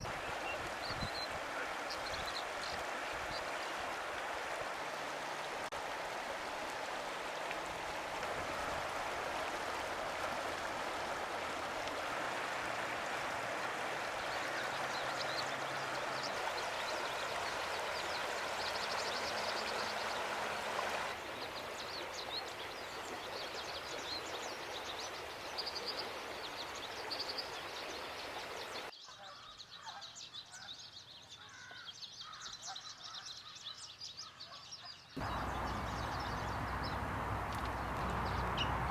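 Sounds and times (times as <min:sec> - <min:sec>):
stream water rushing: 0:00.0 - 0:28.9, 0:35.2 - 0:38.9
small birds chirping: 0:14.0 - 0:38.9.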